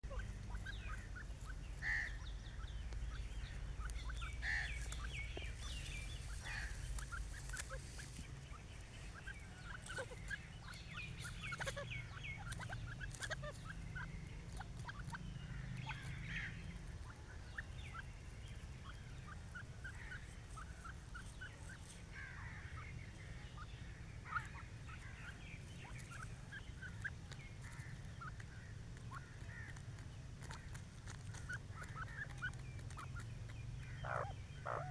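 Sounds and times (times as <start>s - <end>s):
steady low rumble: 0.0s - 21.5s
francolins calling: 0.0s - 34.9s.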